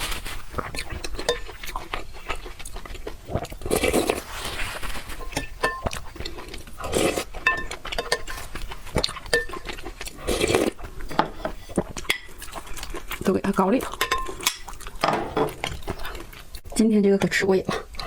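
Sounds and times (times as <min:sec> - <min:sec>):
noodles slurped: 0:00.0 - 0:07.4, 0:08.0 - 0:14.0
wet chewing: 0:00.0 - 0:16.8
chopsticks clinking against bowl: 0:01.0 - 0:01.6, 0:05.2 - 0:06.1, 0:07.4 - 0:08.6, 0:09.2 - 0:09.8, 0:13.4 - 0:15.2.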